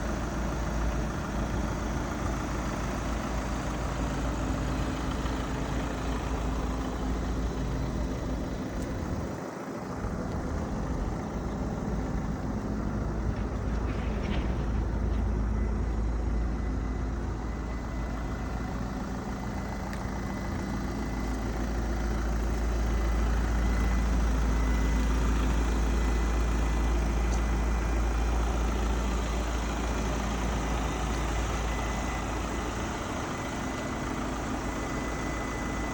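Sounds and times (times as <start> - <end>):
vehicle engine noise: 0.0 - 35.9.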